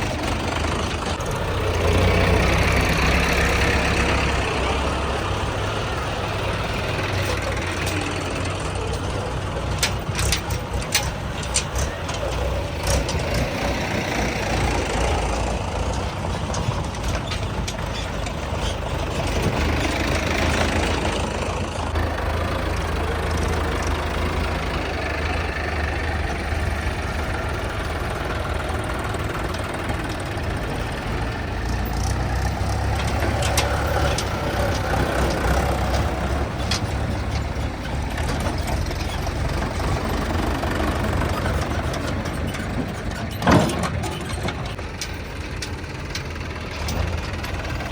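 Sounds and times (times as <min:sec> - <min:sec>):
diesel tractor engines humming: 0:00.0 - 0:47.9.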